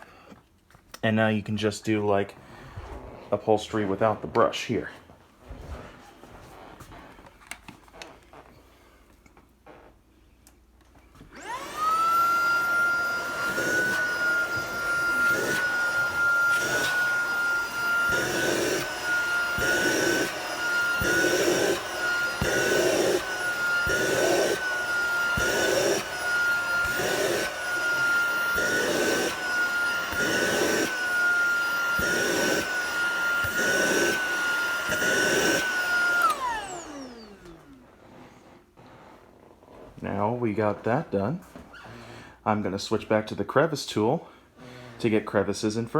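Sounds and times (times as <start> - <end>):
vacuum cleaner motor whine: 11.2 - 39.1
vacuum tool on fabric: 11.2 - 40.2.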